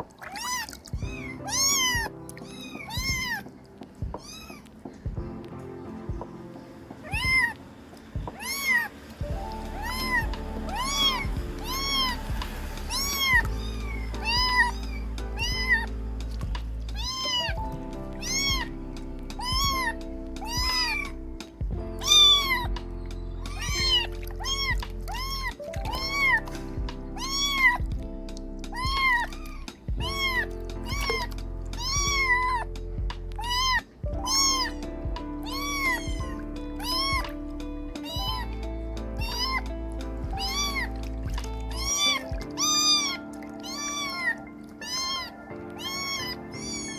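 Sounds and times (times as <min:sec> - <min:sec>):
background music: 0:00.0 - 0:46.9
kittens meowing: 0:00.2 - 0:05.3, 0:07.0 - 0:46.9.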